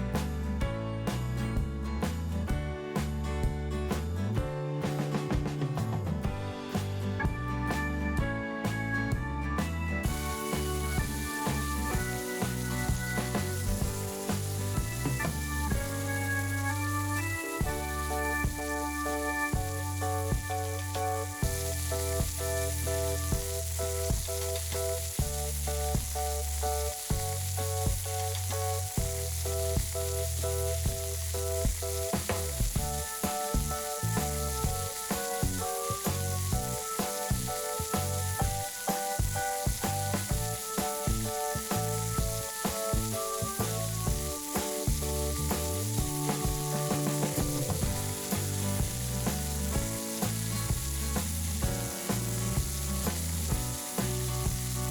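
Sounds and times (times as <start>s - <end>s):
background music with beat: 0.0s - 54.9s
food sizzling in a pan: 10.0s - 54.9s.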